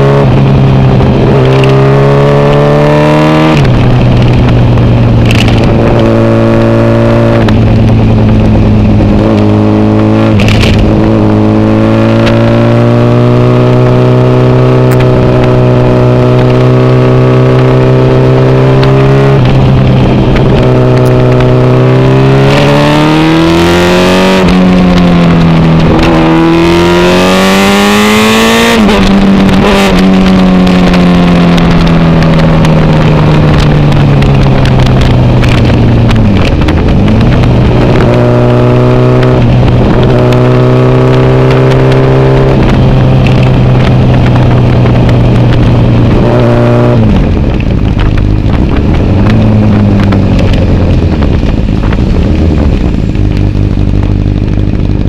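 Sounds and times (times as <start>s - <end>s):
motorcycle engine: 0.0s - 55.0s
wind on microphone: 0.0s - 55.0s.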